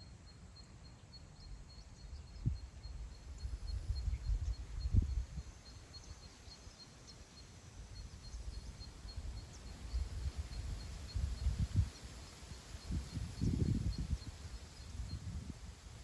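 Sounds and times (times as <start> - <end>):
faint high chirp: 0.0 - 11.9
wind buffeting microphone: 2.2 - 5.6, 8.3 - 16.0.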